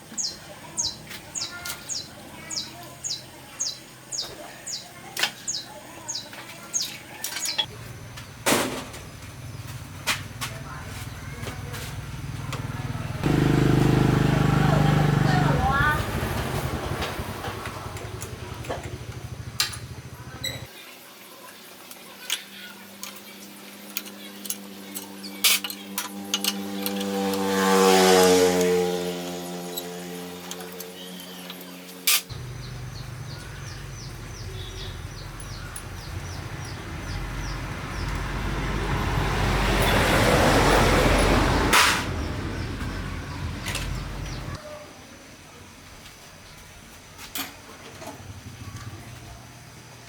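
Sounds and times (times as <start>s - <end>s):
power tool motor running: 13.2s - 15.4s
metal clicks and clinks: 23.9s - 27.2s
bird chirping: 30.6s - 41.4s.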